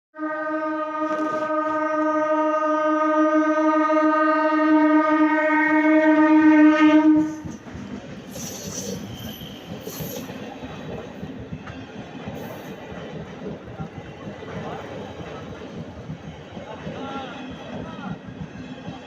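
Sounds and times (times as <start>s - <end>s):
train horn blast: 0.2s - 7.6s
train rumbling and clattering: 6.9s - 19.0s
brief high squeaks: 8.3s - 10.3s.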